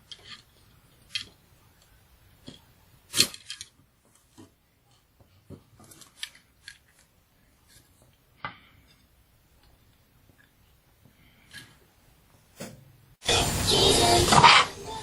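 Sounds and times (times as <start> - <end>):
plastic parts clicking and knocking: 0.0 - 7.1.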